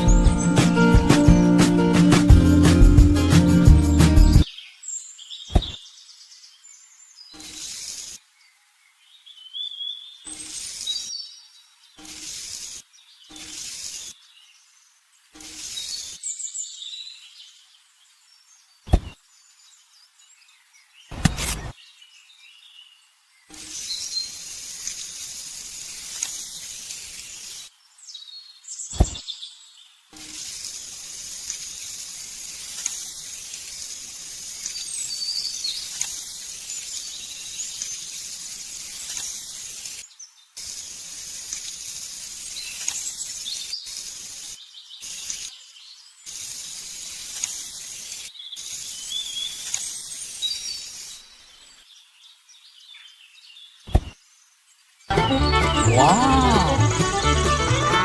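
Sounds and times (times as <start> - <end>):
birds chirping: 0.0 - 8.2, 18.7 - 22.3, 23.4 - 29.6, 31.7 - 58.0
outdoor background hiss: 0.0 - 58.0
sharp click: 21.1 - 21.8.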